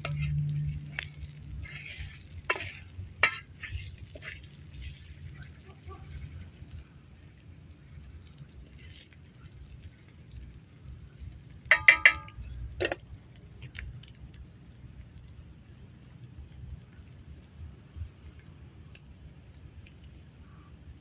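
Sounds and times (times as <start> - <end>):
cooking utensils clinking: 11.7 - 13.0.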